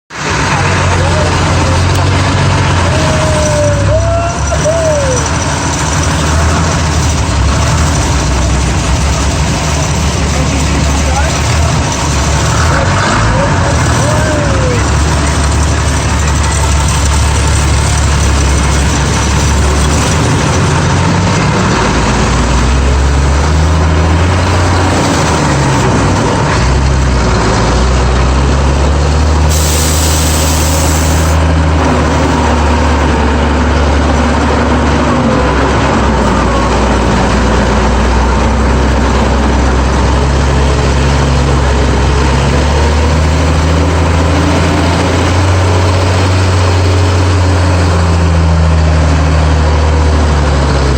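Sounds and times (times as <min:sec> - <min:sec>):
truck engine running under load: 0:00.1 - 0:50.9.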